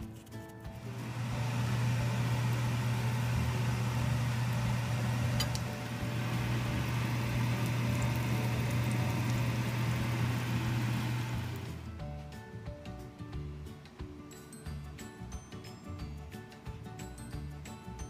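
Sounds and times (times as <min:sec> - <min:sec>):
steady low hum: 0:00.8 - 0:11.9.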